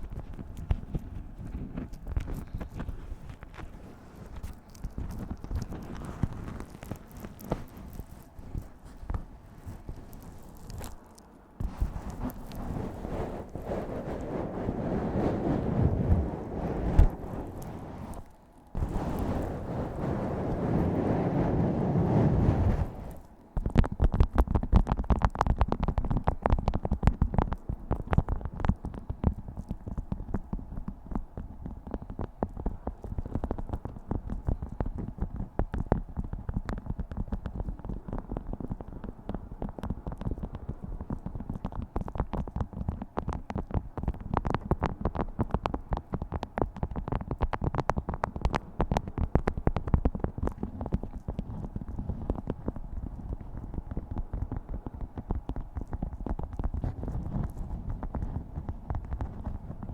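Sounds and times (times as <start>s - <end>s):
waxed cloth wrap crinkling: 0.0s - 20.4s
wax food wrap crinkling: 0.0s - 21.5s, 22.5s - 59.9s.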